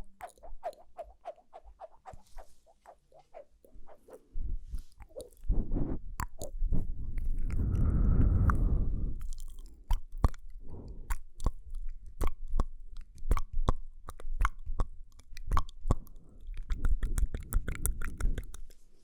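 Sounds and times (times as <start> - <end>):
wet mouth clicks and smacks: 0.0 - 18.9.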